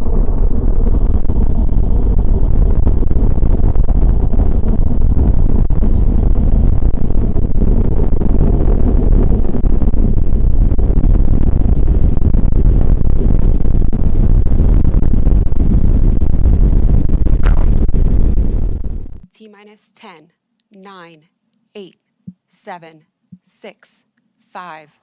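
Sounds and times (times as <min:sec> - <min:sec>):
rocket engine rumble: 0:00.0 - 0:19.3.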